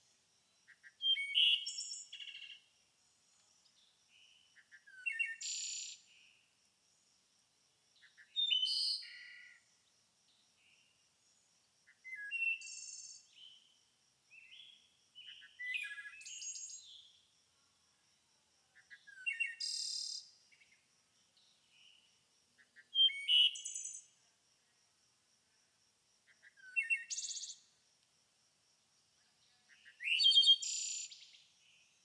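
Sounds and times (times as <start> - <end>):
songbirds chirping and trilling: 29.3 - 32.0.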